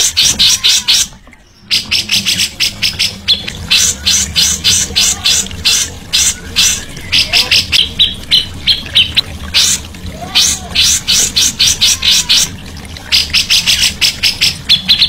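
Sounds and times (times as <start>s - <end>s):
songbird chattering: 0.0s - 9.8s.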